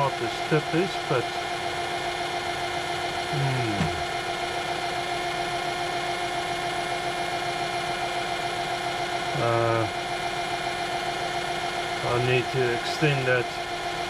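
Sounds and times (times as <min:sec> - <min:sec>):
lathe motor humming: 0:00.0 - 0:09.3
man humming: 0:03.3 - 0:04.1.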